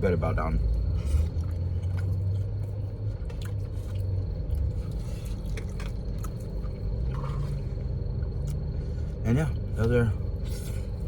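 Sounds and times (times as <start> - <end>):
steady low hum: 0.0 - 11.0
person chewing food: 0.7 - 9.2.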